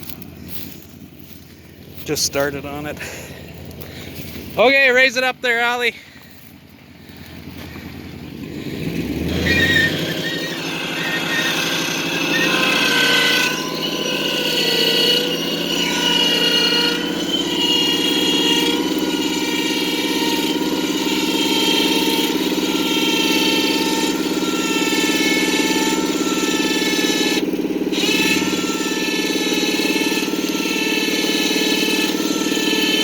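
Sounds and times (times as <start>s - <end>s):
truck engine revving with whine: 0.0s - 33.0s.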